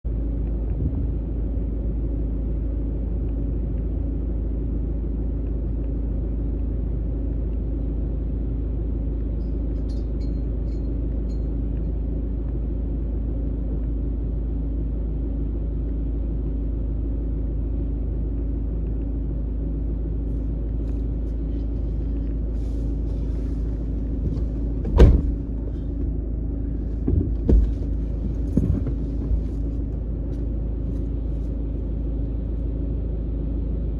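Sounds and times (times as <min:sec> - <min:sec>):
vehicle engine running: 0:00.0 - 0:33.9
small thumps: 0:26.9 - 0:29.9.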